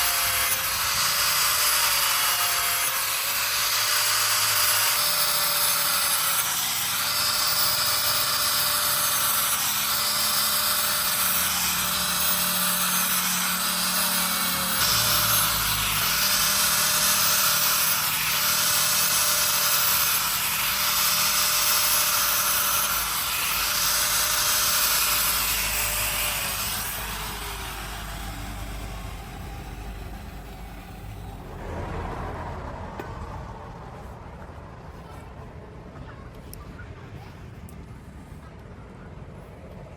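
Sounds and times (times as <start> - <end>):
electric power tool grinding: 0.0 - 31.6
motor winding down: 0.0 - 34.4.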